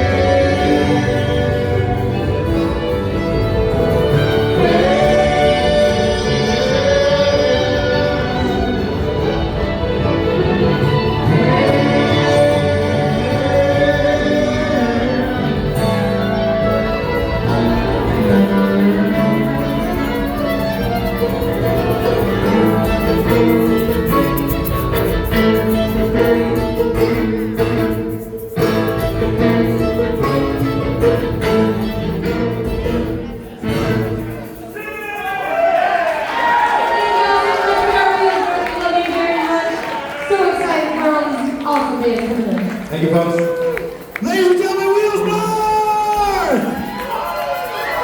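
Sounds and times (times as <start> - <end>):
voices singing in harmony: 0.0 - 3.1, 4.1 - 20.2
live band music: 0.0 - 48.0.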